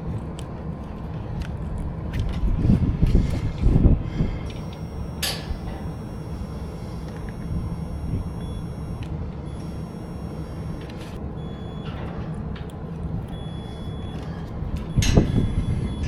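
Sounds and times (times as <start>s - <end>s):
low machine hum: 0.0s - 16.0s
faint high-pitched tones: 4.5s - 12.4s, 13.2s - 16.0s.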